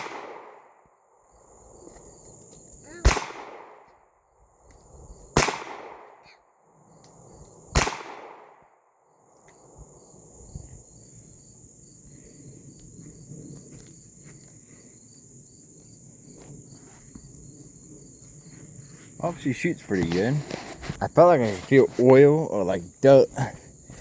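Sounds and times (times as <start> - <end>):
pistol shots with echo: 0.0 - 0.6, 3.0 - 3.9, 5.4 - 6.3, 7.7 - 8.7
insects chirping: 0.0 - 24.0.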